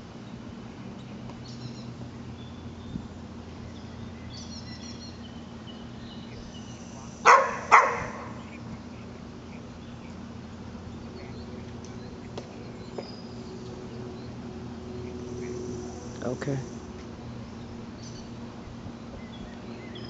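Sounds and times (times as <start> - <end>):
steady low hum: 0.0 - 20.0
faint high bird chirps: 1.0 - 7.1
dog barking: 7.2 - 8.4.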